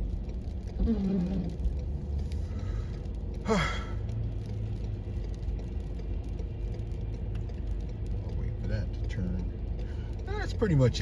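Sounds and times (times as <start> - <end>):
car interior rumble: 0.0 - 11.0
person sighing: 3.5 - 4.0.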